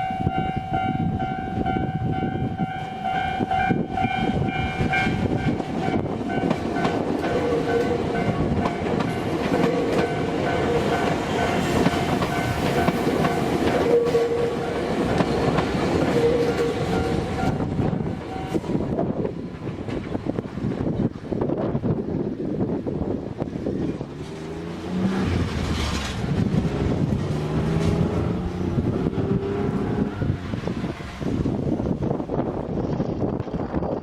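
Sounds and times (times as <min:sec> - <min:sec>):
train rumbling on track: 0:00.0 - 0:34.0
wheels clacking over rails: 0:04.8 - 0:20.5, 0:23.8 - 0:31.0.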